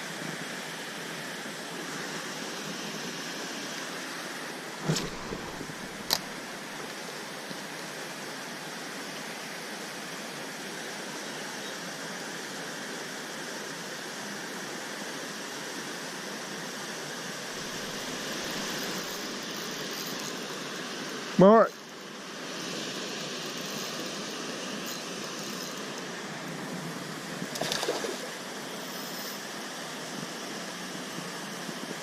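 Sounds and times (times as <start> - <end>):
sharp click: 4.9 - 6.3.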